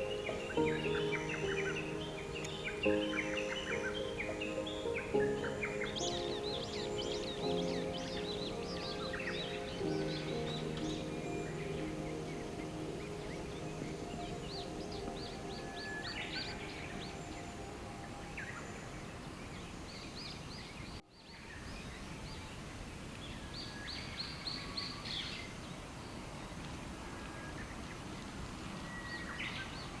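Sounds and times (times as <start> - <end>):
small birds chirping: 0.0 - 22.4
background hiss: 0.0 - 30.0.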